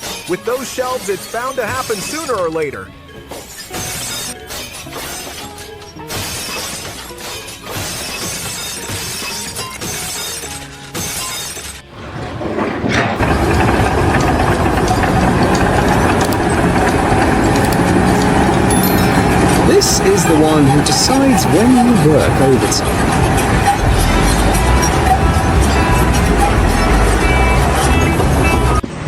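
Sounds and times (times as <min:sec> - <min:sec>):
background music: 0:00.0 - 0:28.9
loud steady rumbling: 0:11.9 - 0:29.0.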